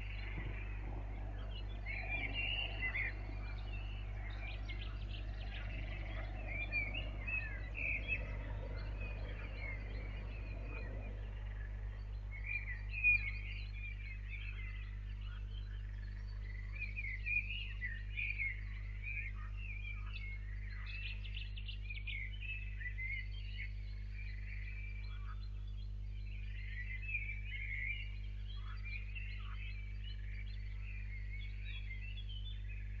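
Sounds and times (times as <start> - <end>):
small birds chirping: 0.0 - 33.0
steady low hum: 0.0 - 33.0.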